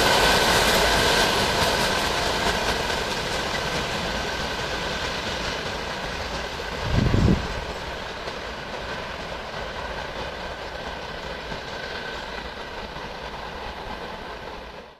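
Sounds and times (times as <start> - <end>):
train wheels clattering over rail joints: 0.0 - 14.9.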